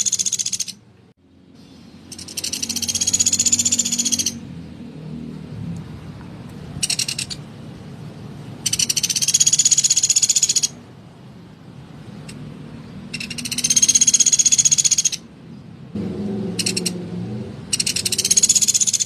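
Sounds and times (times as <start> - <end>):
woodpecker rattling trills: 0.0 - 0.8, 2.1 - 4.4, 6.8 - 7.4, 8.6 - 10.8, 13.1 - 15.3, 16.6 - 17.0, 17.7 - 19.0.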